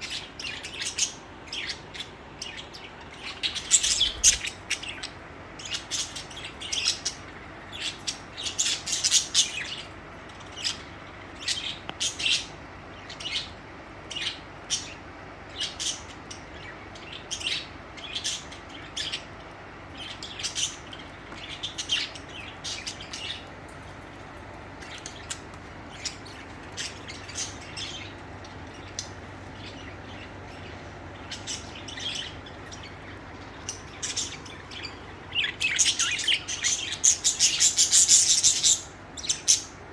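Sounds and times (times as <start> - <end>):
budgerigars chirping: 0.0 - 23.5, 24.8 - 39.8.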